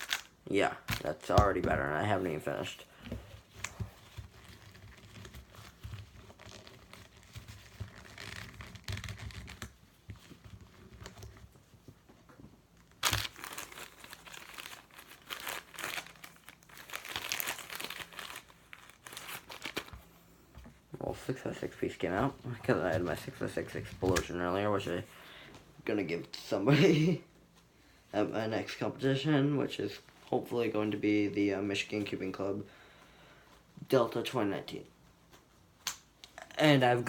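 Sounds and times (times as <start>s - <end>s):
tissue paper crinkling: 3.4s - 11.4s, 12.9s - 20.0s.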